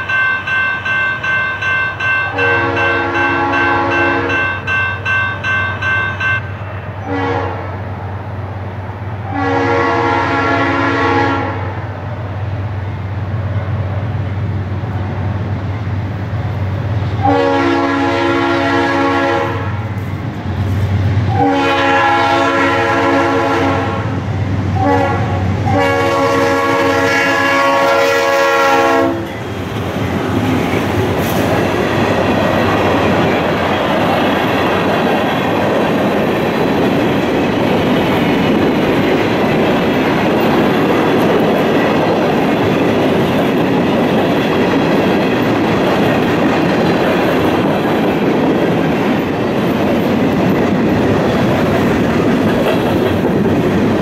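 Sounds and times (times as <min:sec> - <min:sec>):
locomotive horn blasts: 0:02.2 - 0:04.6, 0:07.0 - 0:07.8, 0:09.3 - 0:11.8, 0:17.2 - 0:19.9, 0:21.3 - 0:24.2, 0:24.8 - 0:29.4
freight cars clattering on rails: 0:29.0 - 0:54.0.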